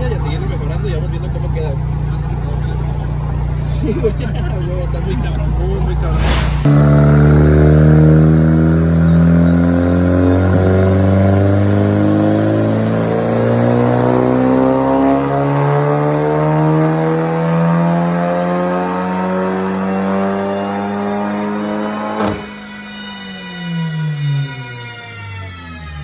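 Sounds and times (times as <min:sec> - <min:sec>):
car engine revving on dynamometer: 0:06.1 - 0:26.0.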